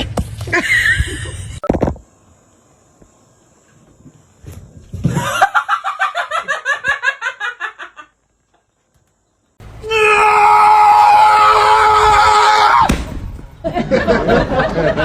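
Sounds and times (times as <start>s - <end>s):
long loud scream: 9.8s - 12.9s.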